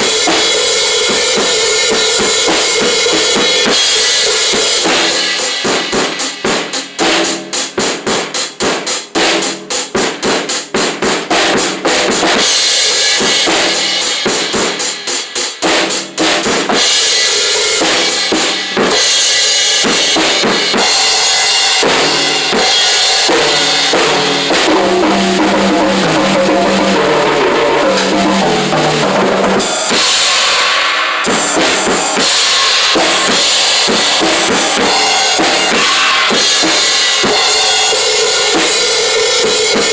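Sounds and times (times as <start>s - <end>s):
drum kit played hard: 0.0s - 39.9s
rock band music: 17.8s - 38.8s.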